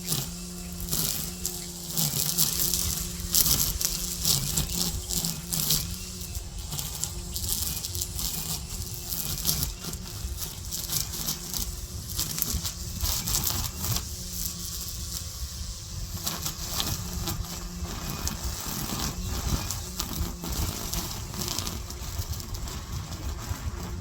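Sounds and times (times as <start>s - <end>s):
string trimmer engine running: 0.0s - 24.0s.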